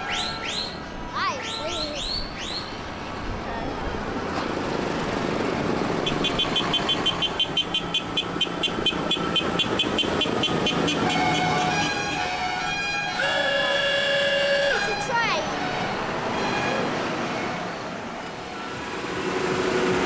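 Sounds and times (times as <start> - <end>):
tractor engine: 3.0 - 20.0.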